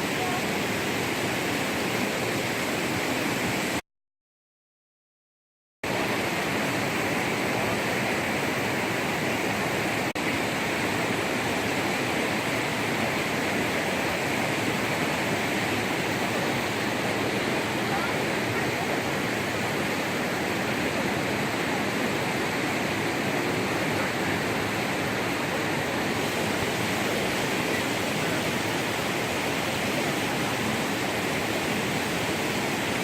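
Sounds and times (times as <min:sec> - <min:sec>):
steady rushing noise: 0:05.8 - 0:33.0.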